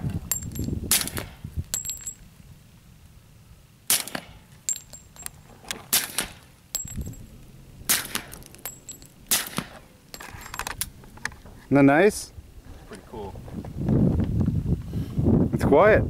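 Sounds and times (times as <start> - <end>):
high metallic tinks: 0.3 - 0.9, 1.6 - 2.3, 4.6 - 5.6, 6.7 - 11.0
suppressed pistol shots: 7.8 - 8.4, 9.3 - 9.8.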